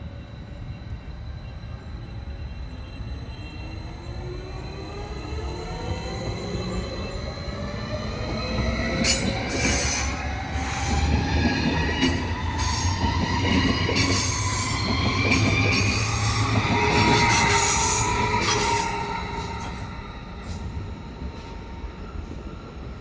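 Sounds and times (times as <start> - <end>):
train wheels squealing: 0.0 - 23.0
electric train motor whine: 3.9 - 21.5
train wheels rumbling: 5.0 - 23.0.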